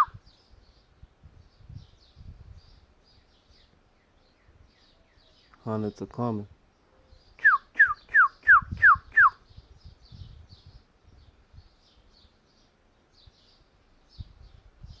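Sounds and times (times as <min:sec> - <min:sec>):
cardinal whistled song: 0:07.4 - 0:09.4.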